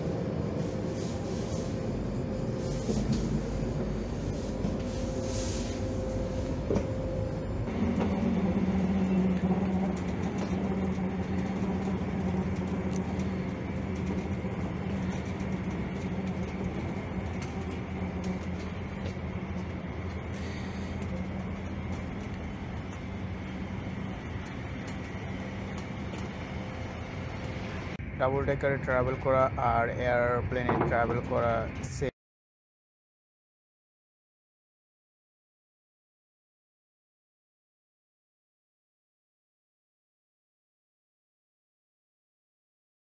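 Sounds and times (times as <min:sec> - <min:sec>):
high whine: 0:00.0 - 0:32.1
steady low hum: 0:00.0 - 0:32.1
train running rumble: 0:00.0 - 0:32.1.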